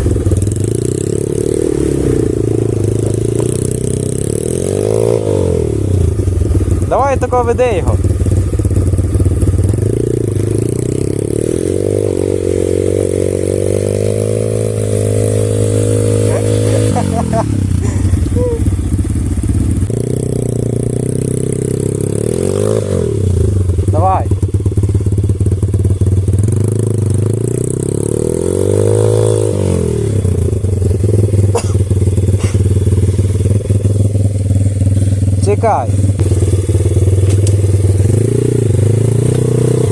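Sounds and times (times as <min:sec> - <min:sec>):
single-cylinder engine revving: 0:00.0 - 0:39.9.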